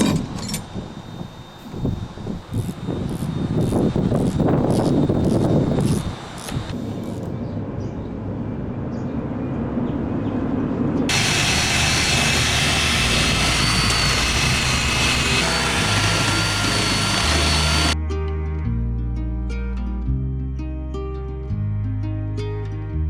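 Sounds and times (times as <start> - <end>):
power tool whining: 0.0 - 6.8, 11.1 - 18.0.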